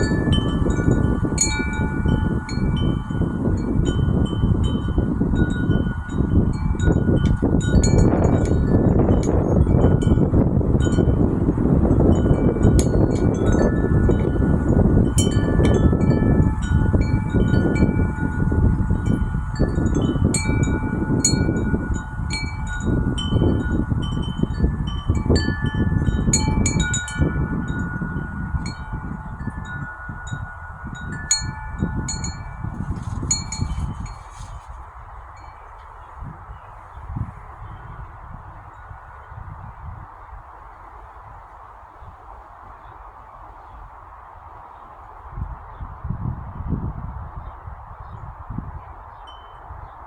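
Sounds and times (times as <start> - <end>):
wind chime ringing: 0.0 - 10.2, 12.1 - 34.5
wind rumbling on microphone: 0.0 - 50.0.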